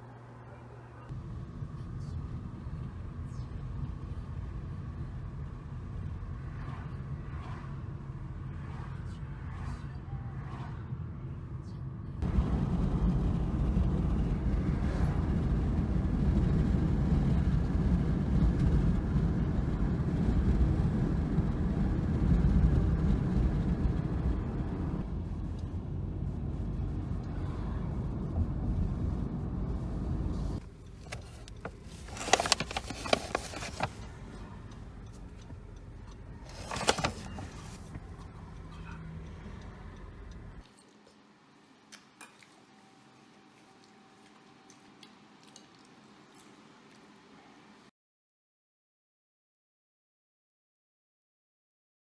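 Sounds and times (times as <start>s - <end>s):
vehicle engine rumbling: 1.1s - 40.6s
clicking and rustling: 30.6s - 38.7s.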